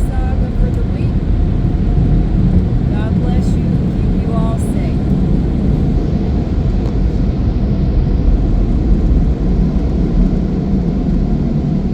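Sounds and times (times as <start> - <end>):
car rumbling: 0.0 - 11.9.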